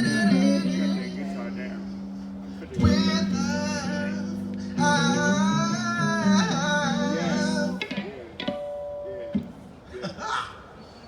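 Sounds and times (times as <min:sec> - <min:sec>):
man singing wordless notes: 0:00.0 - 0:08.1.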